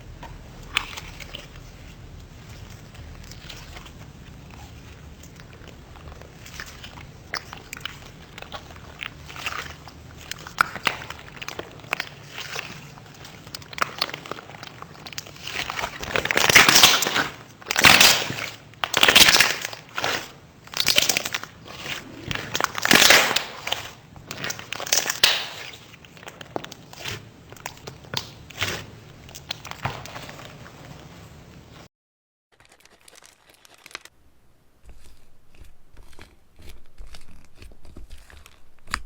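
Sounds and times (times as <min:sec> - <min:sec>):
slime squeezed by hand crackling: 0:02.9 - 0:30.5.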